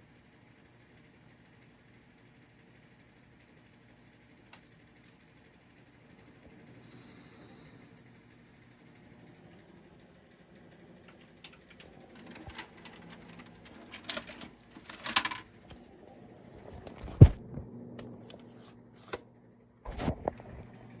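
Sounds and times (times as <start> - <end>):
scattered clicks and knocks: 11.1 - 15.5
heavy thump: 17.0 - 17.6.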